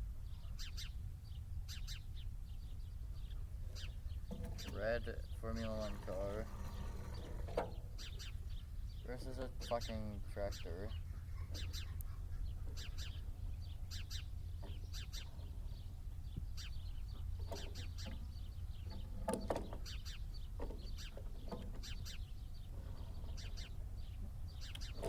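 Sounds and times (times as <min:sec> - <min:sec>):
steady low rumble: 0:00.0 - 0:19.2
small birds chirping: 0:00.0 - 0:25.0.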